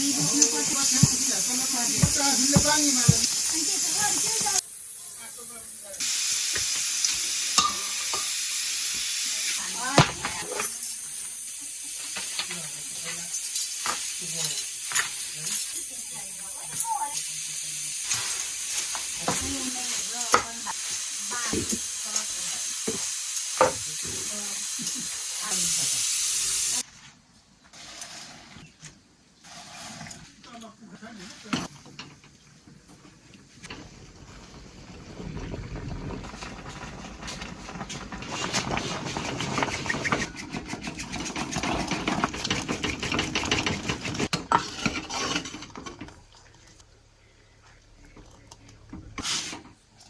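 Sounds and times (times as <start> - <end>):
rice mill clatter and rumble: 0.0 - 4.7, 5.9 - 26.9, 27.7 - 50.0
food sizzling in a pan: 0.0 - 26.8.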